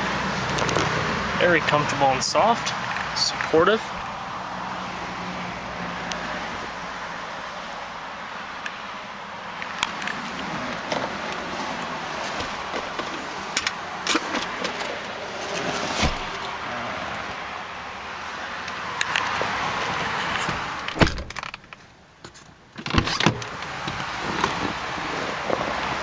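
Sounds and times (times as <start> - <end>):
clicks and knocks from car door: 20.0 - 24.7.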